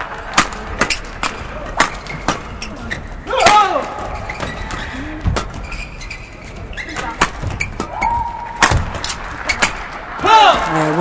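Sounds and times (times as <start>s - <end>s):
court shoes squeaking: 0.0s - 11.0s
crowd noise in hall: 0.0s - 11.0s
racket striking shuttlecock: 0.3s - 2.5s, 7.0s - 9.9s.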